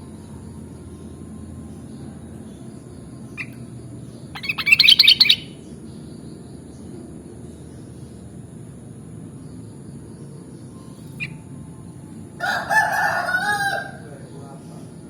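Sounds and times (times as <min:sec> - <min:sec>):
bird chattering song: 0:00.0 - 0:08.4, 0:09.3 - 0:12.1
low background noise: 0:00.0 - 0:15.0.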